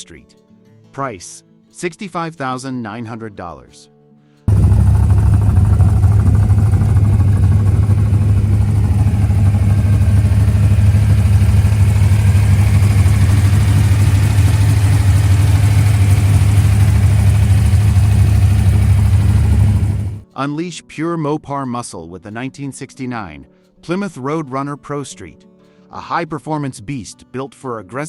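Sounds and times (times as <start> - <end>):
car engine idling: 4.5 - 20.2.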